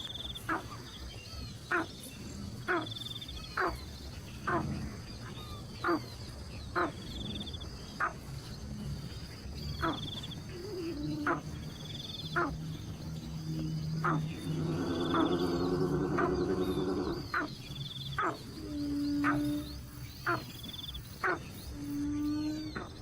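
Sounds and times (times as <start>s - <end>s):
wild animal calls: 9.8s - 23.0s.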